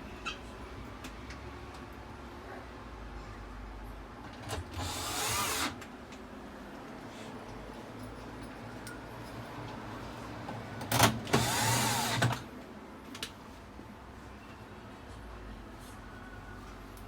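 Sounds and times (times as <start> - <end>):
small electric motor whirring: 4.8 - 5.8, 11.4 - 12.3.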